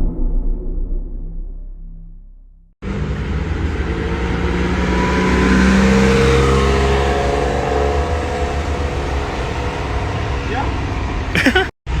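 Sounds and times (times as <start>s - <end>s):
sports car engine running: 2.8s - 11.6s.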